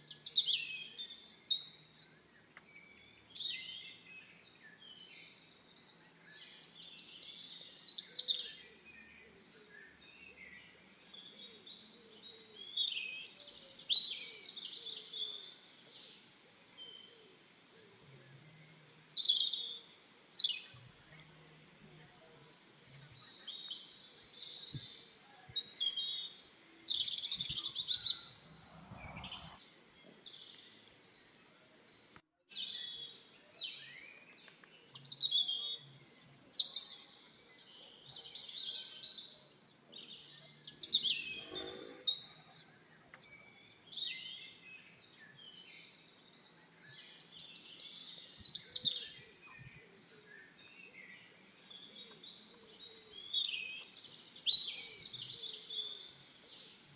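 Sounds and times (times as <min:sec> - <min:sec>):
birds chirping and singing: 0:00.0 - 0:31.6, 0:32.5 - 0:56.9.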